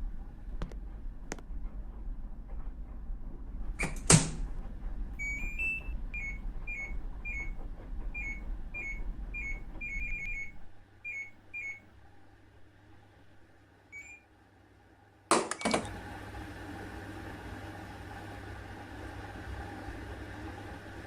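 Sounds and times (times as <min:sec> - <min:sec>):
washing machine control panel beeps: 0:05.2 - 0:12.0, 0:13.9 - 0:14.3.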